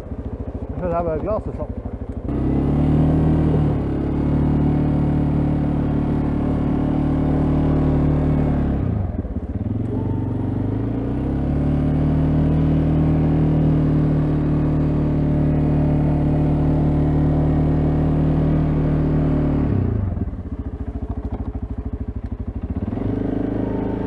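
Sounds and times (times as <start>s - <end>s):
atv engine running: 0.0s - 24.0s.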